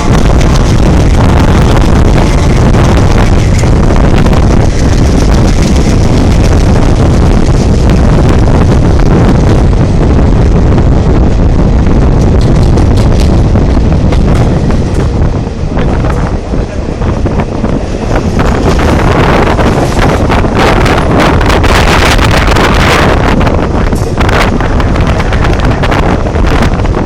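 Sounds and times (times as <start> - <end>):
diesel train rumbling past: 0.0 - 27.0
wind buffeting microphone: 0.0 - 27.0.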